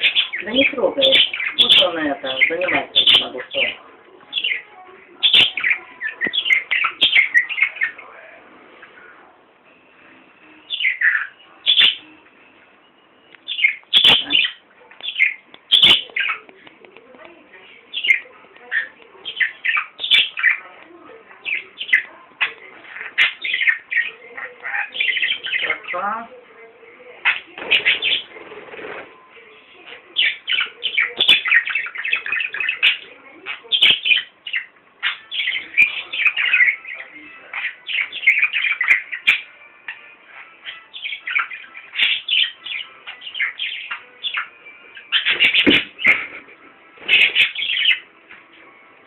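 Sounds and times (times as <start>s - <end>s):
parrot squawking: 0.0s - 8.0s, 10.6s - 12.4s, 13.4s - 16.5s, 17.9s - 20.7s, 21.4s - 26.2s, 27.2s - 28.4s, 30.2s - 48.1s.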